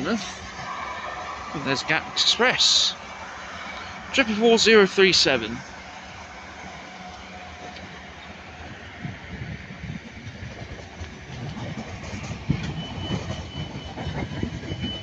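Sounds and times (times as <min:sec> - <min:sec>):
train wheels clattering over joints: 0:10.0 - 0:15.0
high wheel squeal: 0:12.1 - 0:15.0.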